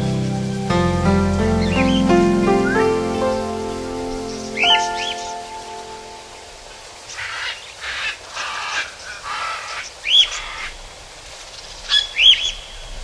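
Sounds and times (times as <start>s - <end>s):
clear arched bird chirp: 1.6s - 3.4s, 4.2s - 7.8s.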